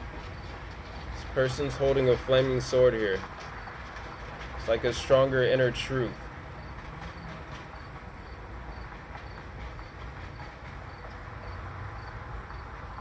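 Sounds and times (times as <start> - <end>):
cricket chirping: 6.0 - 12.7.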